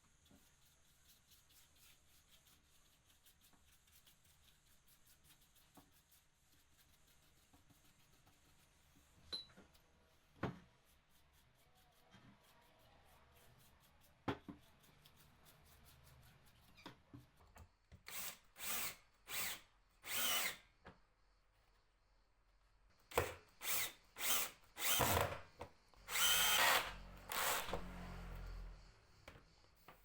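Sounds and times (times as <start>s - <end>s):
power drill bursts: 18.1s - 20.6s, 23.1s - 25.4s, 26.1s - 28.8s.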